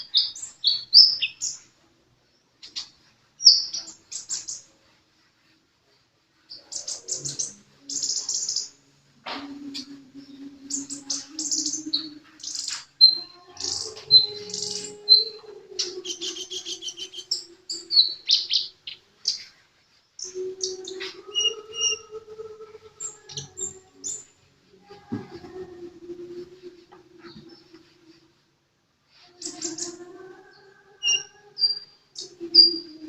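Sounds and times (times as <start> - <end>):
bird chirping and trilling: 0.0 - 1.6, 2.6 - 4.7, 6.5 - 8.8, 10.6 - 19.5, 20.2 - 24.3, 29.4 - 30.1, 31.0 - 33.0.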